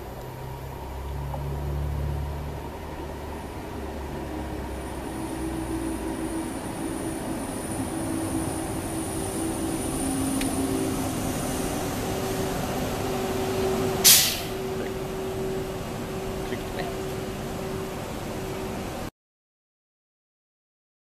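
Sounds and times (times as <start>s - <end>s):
electric train rumbling and braking: 0.0s - 19.1s
faint high whine: 0.0s - 19.1s
air hiss: 14.0s - 14.6s.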